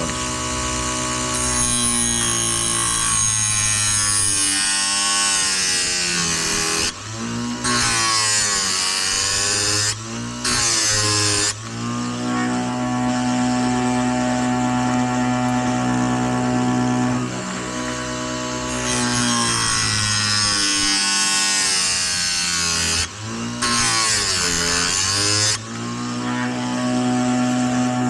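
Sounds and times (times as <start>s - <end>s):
grinding wheel hissing on chain: 0.0s - 6.9s.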